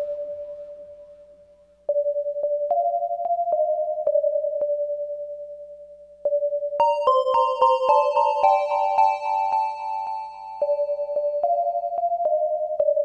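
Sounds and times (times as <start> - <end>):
synth line with clicks: 1.9 - 5.3.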